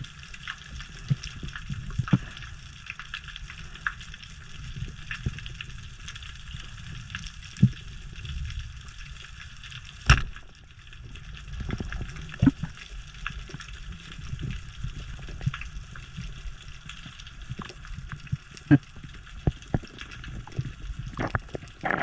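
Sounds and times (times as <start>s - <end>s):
low underwater rumble: 0.0s - 22.0s
underwater crackling clicks: 0.2s - 22.0s.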